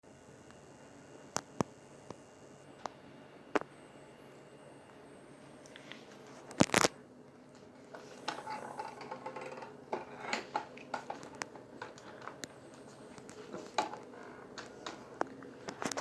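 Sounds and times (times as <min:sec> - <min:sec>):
vacuum transmission clicking: 0:07.5 - 0:16.0.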